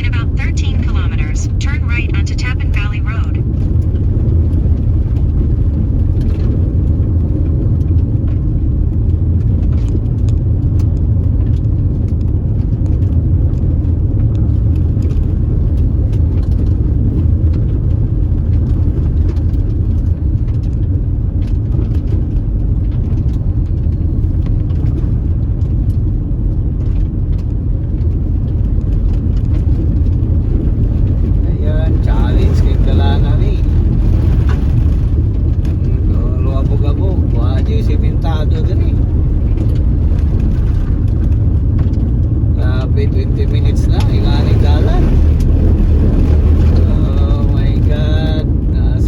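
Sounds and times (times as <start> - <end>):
car driving on dirt road: 0.0 - 49.0.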